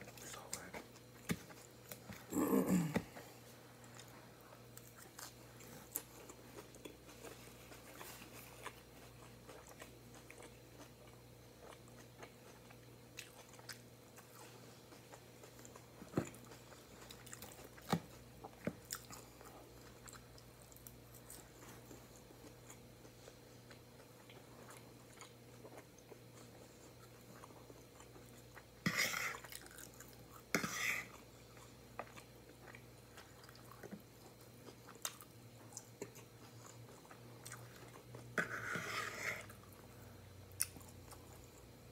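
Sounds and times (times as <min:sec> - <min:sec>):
person chewing and crunching: 0:00.0 - 0:41.8
faint steady hum: 0:00.0 - 0:41.9.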